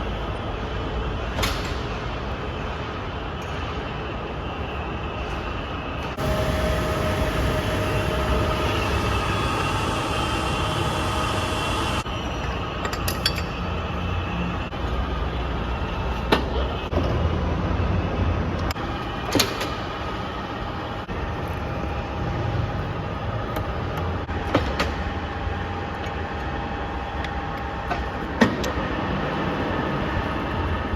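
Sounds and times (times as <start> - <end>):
drill press humming with gear whine: 4.4 - 16.9.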